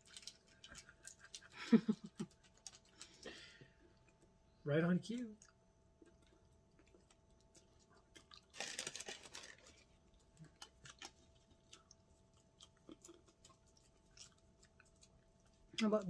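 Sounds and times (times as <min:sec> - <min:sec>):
soft mouth clicks of chewing: 0:00.0 - 0:01.6, 0:05.4 - 0:08.5, 0:10.1 - 0:15.9
crunchy bite and chewing: 0:05.4 - 0:15.4.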